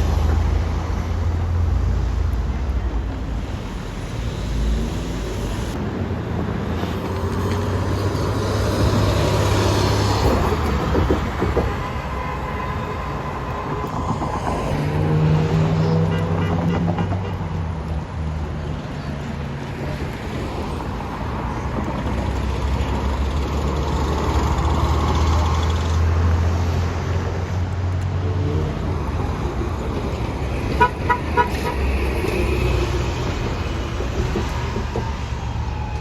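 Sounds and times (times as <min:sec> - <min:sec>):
street traffic: 0:00.0 - 0:36.0
vehicle horn toots: 0:30.8 - 0:31.8.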